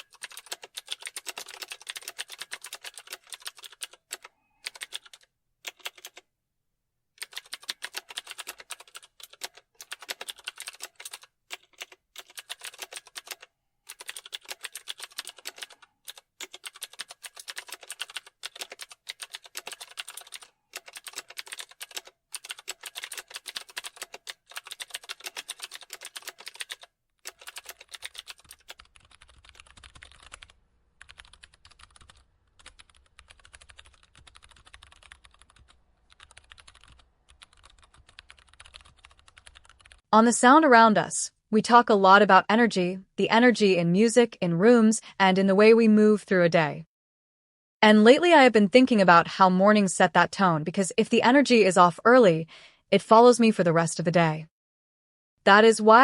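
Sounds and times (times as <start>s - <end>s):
typing on computer keyboard: 0.0s - 6.2s, 7.2s - 40.1s.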